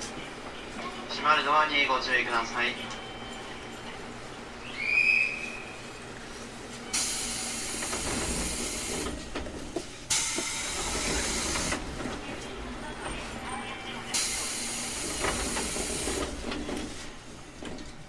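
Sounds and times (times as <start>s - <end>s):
high whistle-like tone: 4.6s - 5.8s
train running rumble: 6.1s - 18.0s.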